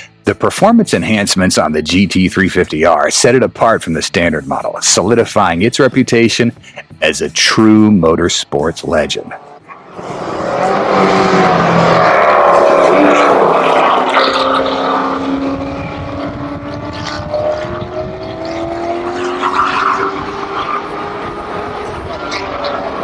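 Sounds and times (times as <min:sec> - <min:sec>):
car engine at high revs: 0:09.2 - 0:23.0.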